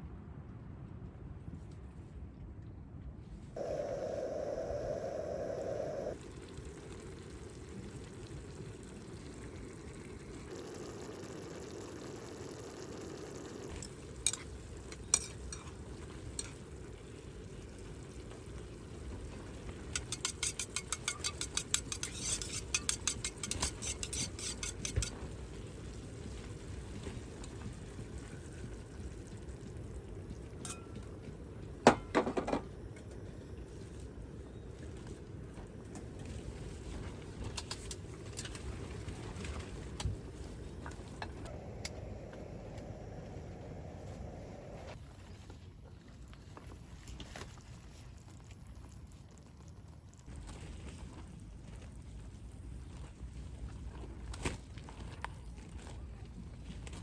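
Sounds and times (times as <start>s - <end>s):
utensil clinking on pot: 19.9s - 25.2s.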